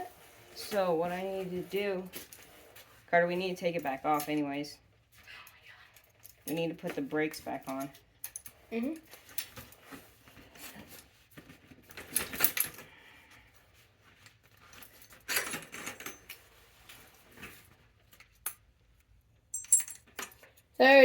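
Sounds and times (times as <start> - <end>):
metal tools clinking and rattling: 6.0 - 10.0, 11.9 - 12.8, 14.5 - 16.6, 19.5 - 20.6.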